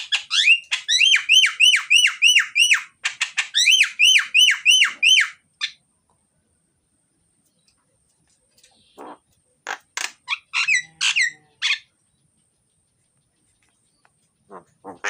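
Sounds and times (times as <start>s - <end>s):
starling singing: 10.0s - 11.9s.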